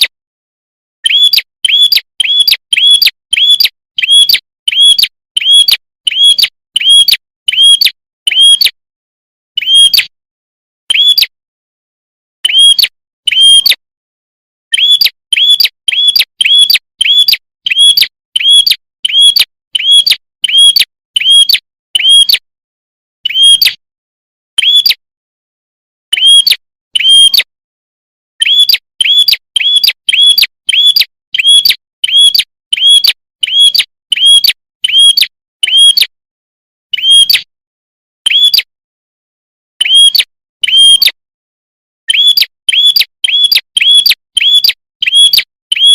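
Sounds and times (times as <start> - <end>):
songbird chirping: 1.0 - 8.6.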